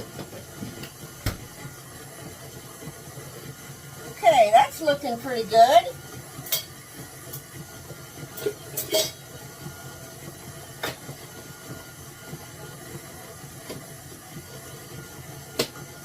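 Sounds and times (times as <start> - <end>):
low mechanical hum: 0.0 - 16.0
utensils and dishes clinking: 6.4 - 7.5, 8.3 - 9.3.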